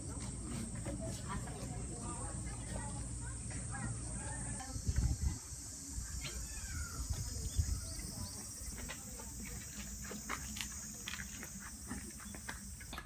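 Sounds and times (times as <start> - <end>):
cicadas droning: 0.0 - 13.0.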